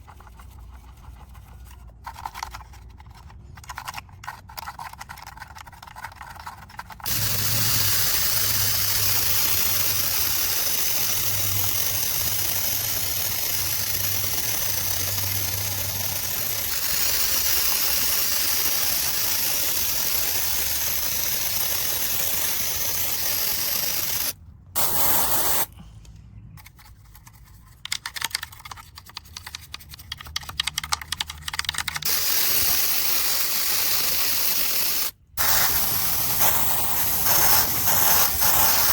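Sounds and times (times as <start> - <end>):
spray jet hissing: 7.1 - 25.7, 32.0 - 38.9.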